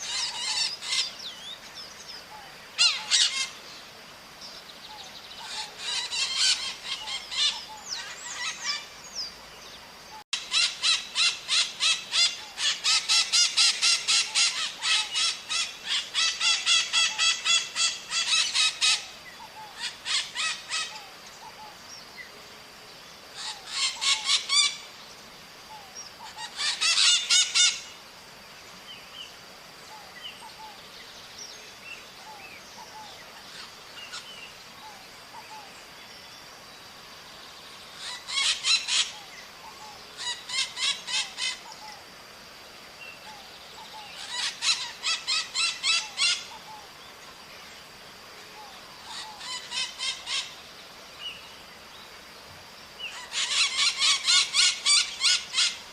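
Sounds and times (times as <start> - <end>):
parrots squawking: 2.8 - 3.5, 5.4 - 8.8, 10.4 - 19.1, 19.8 - 21.0, 26.3 - 27.8, 38.0 - 39.2, 44.2 - 46.5, 49.1 - 50.5, 53.1 - 55.8.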